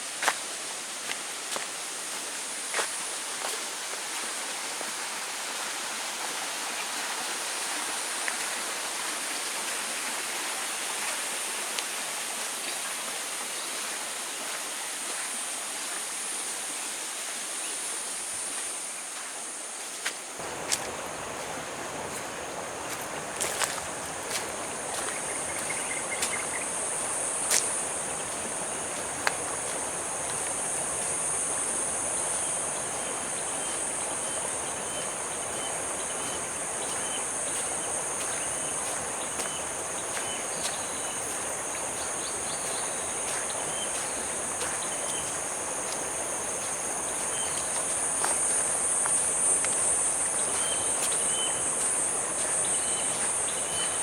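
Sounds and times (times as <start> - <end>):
insect chirps: 12.6 - 54.0
high-pitched insect chorus: 17.6 - 54.0.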